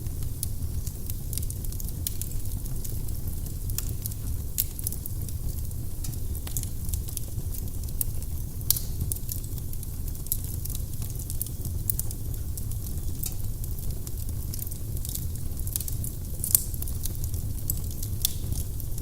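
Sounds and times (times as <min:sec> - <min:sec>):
firewood crackling and popping: 0:00.0 - 0:19.0
low rumble of flames: 0:00.0 - 0:19.0.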